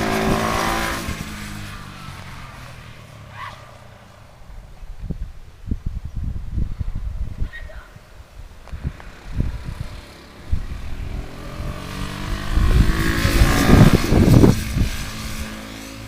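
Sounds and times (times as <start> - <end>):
vehicle engine passing by: 0.0 - 4.6, 8.8 - 16.0.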